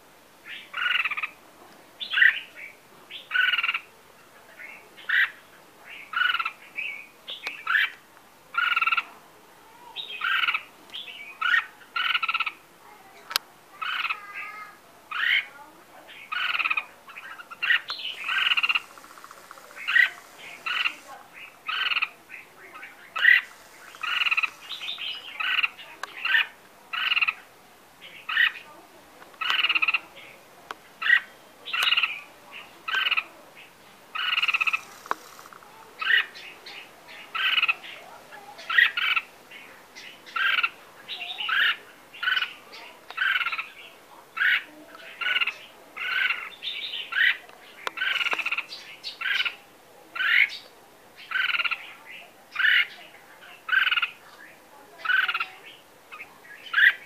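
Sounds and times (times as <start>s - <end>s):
caged bird chirping: 9.9s - 12.6s, 13.2s - 27.4s, 29.4s - 57.0s.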